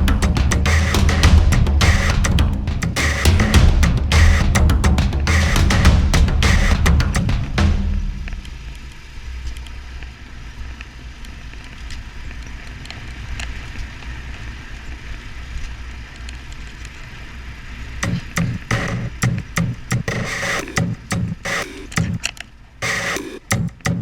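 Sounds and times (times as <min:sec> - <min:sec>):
music with drum beat: 0:00.0 - 0:08.7, 0:18.0 - 0:24.0.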